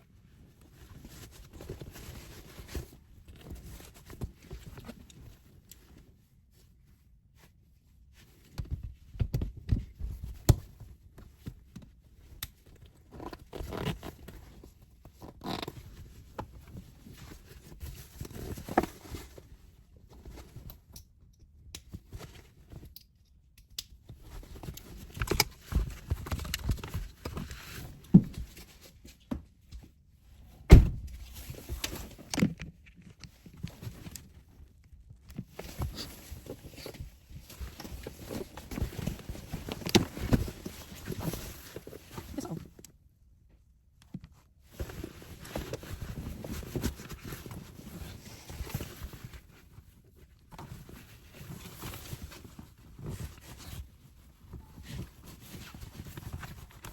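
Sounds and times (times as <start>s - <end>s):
loud sharp thump: 30.7s - 31.2s.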